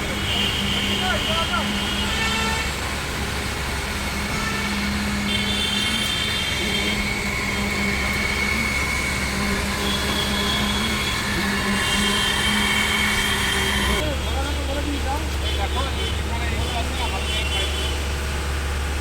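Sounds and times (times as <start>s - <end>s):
concrete pump engine rumble: 0.0s - 19.0s
thin high tone: 4.0s - 14.0s.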